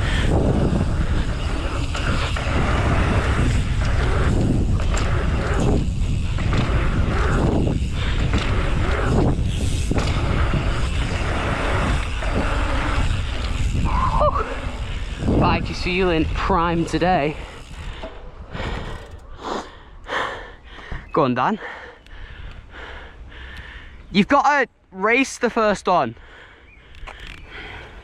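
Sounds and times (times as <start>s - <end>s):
strong wind buffeting microphone: 0.0s - 21.2s.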